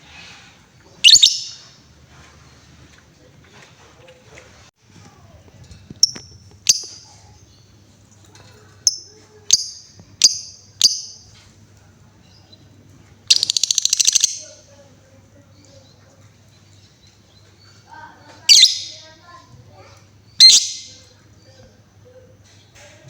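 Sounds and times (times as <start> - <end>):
lovebird chirping: 1.0 - 1.7, 6.0 - 7.7, 8.8 - 11.3, 13.3 - 14.7, 18.4 - 19.1, 20.3 - 21.1
rapid ticking chatter: 13.3 - 14.6.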